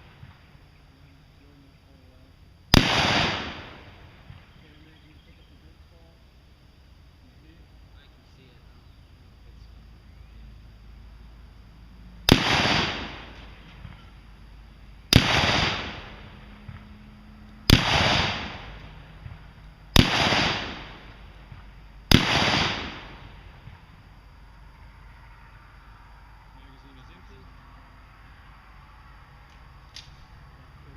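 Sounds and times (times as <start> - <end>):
gunshots with echo: 2.7 - 4.0, 12.3 - 14.0, 15.1 - 16.4, 17.7 - 18.9, 20.0 - 21.1, 22.1 - 23.4.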